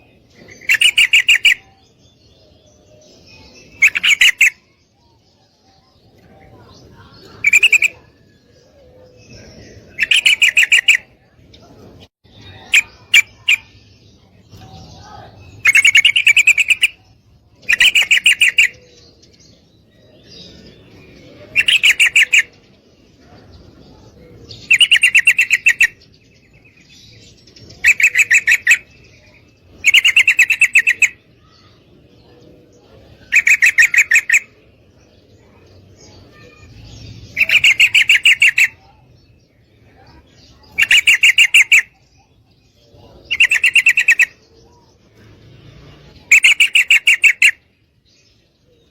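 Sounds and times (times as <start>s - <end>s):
bird chattering call: 0.4s - 1.8s, 3.6s - 4.8s, 7.2s - 8.2s, 9.8s - 11.2s, 12.4s - 13.8s, 14.6s - 19.0s, 21.4s - 22.6s, 24.5s - 26.1s, 27.8s - 31.8s, 33.2s - 34.6s, 36.3s - 39.0s, 40.0s - 42.3s, 43.0s - 44.5s, 46.1s - 47.7s.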